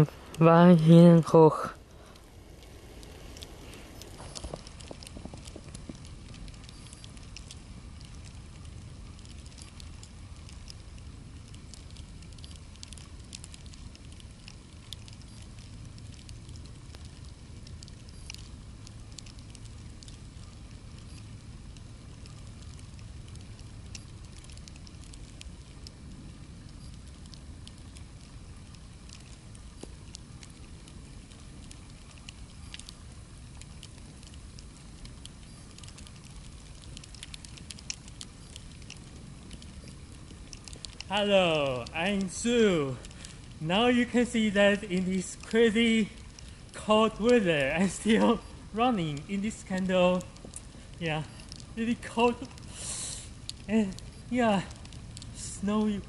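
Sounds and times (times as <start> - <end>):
crackling patter and ticks: 0.0 - 56.0
wind rumble on microphone: 1.8 - 42.2.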